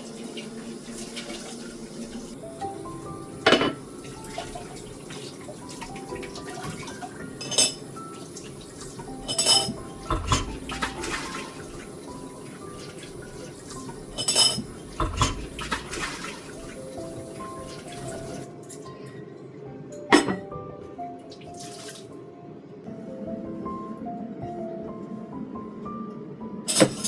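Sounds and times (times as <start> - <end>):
dishes and cutlery clinking: 3.4 - 4.6, 5.7 - 7.9, 8.8 - 11.9, 14.1 - 16.3, 20.0 - 20.5, 26.7 - 27.0.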